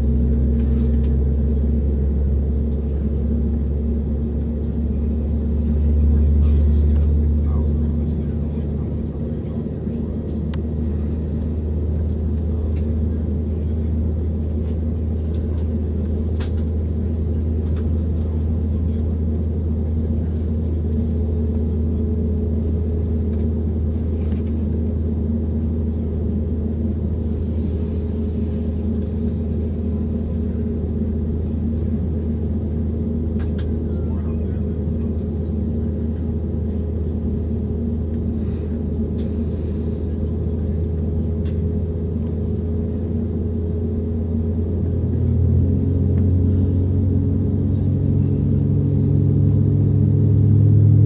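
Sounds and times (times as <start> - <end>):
aircraft engines rumbling in cabin: 0.0 - 51.0.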